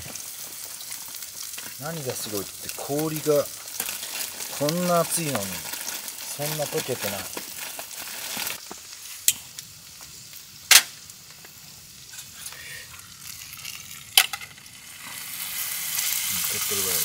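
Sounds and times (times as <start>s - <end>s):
chicken frying hiss: 0.0s - 17.0s.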